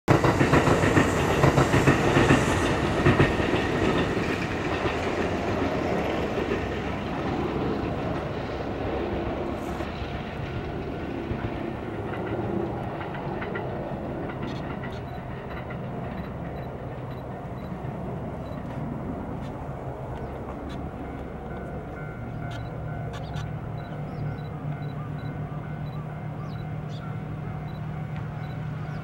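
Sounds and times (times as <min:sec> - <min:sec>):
electric train running: 0:00.1 - 0:29.0
wheels clicking over rail joints: 0:09.7 - 0:24.9.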